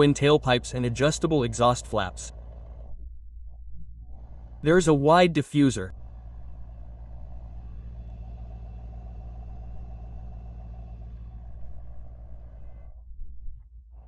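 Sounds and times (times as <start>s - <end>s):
car engine idling: 0.0s - 3.1s, 3.8s - 14.0s.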